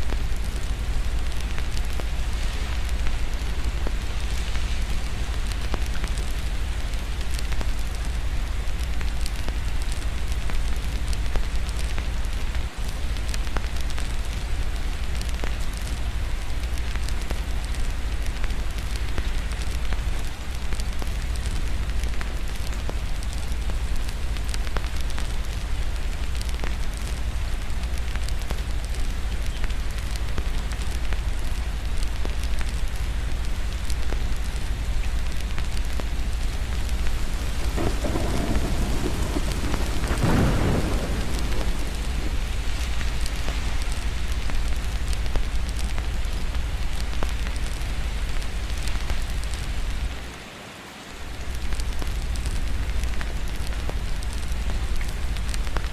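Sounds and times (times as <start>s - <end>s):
wood fire crackling: 0.0s - 50.4s, 51.3s - 55.9s
steady rain: 0.0s - 55.9s
thunder rolling: 36.9s - 44.2s.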